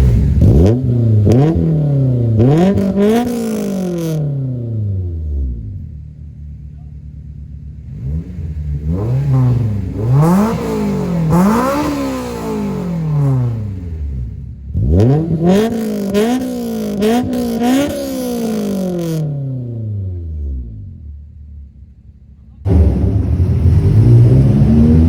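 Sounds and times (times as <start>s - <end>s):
car engine revving: 0.0s - 6.4s, 7.7s - 25.0s.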